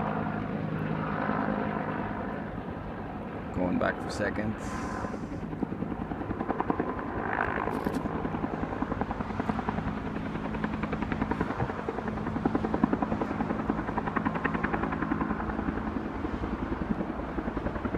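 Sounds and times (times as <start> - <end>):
helicopter engine drone: 0.0 - 17.9
helicopter rotor blades chopping: 0.0 - 17.9.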